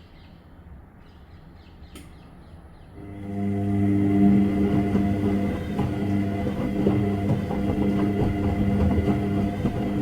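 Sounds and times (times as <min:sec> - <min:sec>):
washing machine motor hum: 0:02.9 - 0:10.0.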